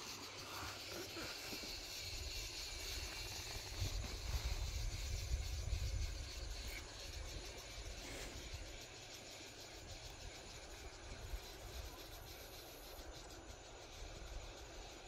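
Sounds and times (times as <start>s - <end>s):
faint steady hiss: 0.0s - 15.0s
wind buffeting microphone: 3.5s - 7.3s.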